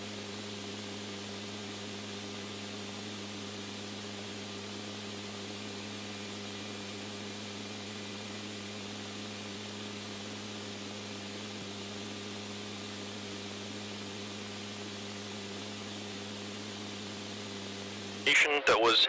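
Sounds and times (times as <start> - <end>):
radio static hiss: 14.0 - 19.0.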